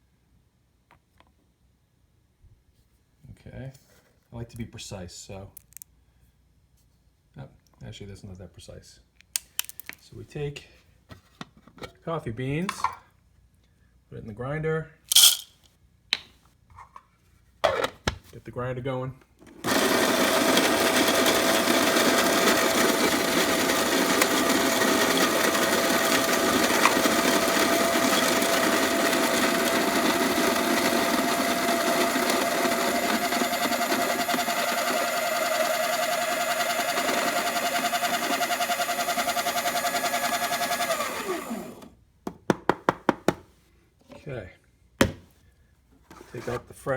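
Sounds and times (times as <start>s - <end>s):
electric coffee grinder grinding: 15.1s - 15.4s, 19.6s - 41.9s.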